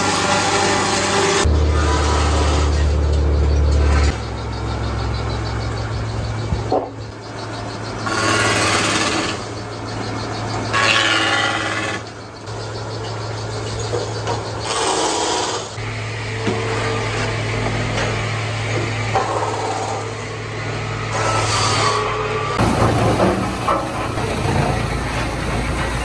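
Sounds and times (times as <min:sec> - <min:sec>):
saw cutting wood whining: 0:00.0 - 0:04.0, 0:08.0 - 0:09.6, 0:10.7 - 0:12.2
sawmill machinery humming: 0:00.0 - 0:26.0.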